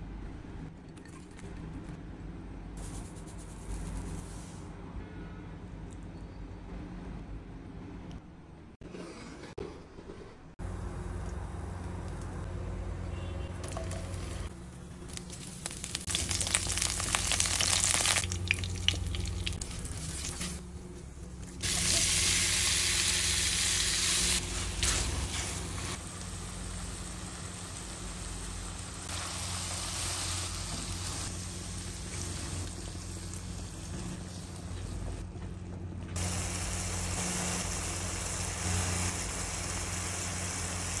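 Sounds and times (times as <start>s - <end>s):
prawns sizzling in oil: 15.1s - 20.6s, 21.6s - 35.1s, 36.2s - 41.0s.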